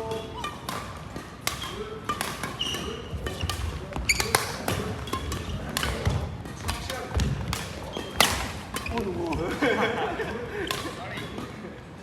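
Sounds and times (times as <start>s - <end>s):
racket striking shuttlecock: 0.0s - 9.8s, 10.7s - 11.0s
shoe squeaks: 2.5s - 5.8s, 7.8s - 9.1s
footfalls on court floor: 3.1s - 9.7s.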